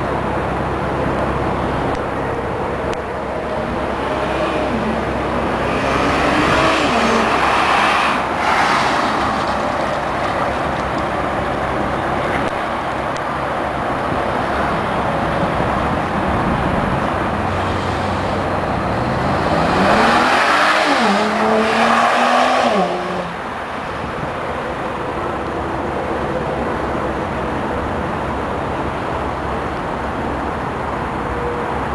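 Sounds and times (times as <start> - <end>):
wind and road noise: 0.0 - 31.9
car engine accelerating past: 3.8 - 10.1, 17.4 - 23.7.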